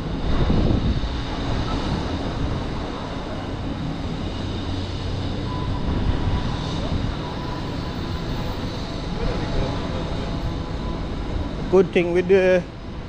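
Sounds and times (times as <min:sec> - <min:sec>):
road traffic rumble: 0:00.0 - 0:13.0
vehicle engines running close by: 0:00.0 - 0:13.0.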